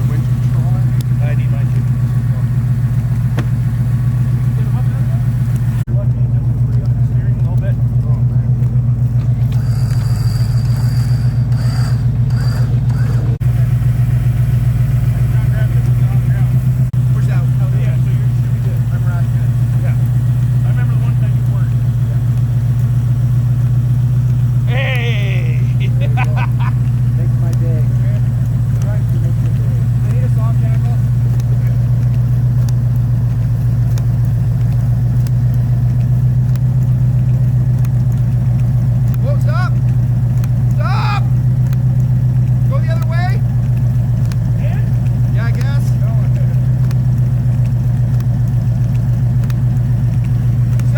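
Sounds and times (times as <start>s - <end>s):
vehicle engine idling: 0.0s - 50.9s
faint clicks: 25.8s - 50.9s.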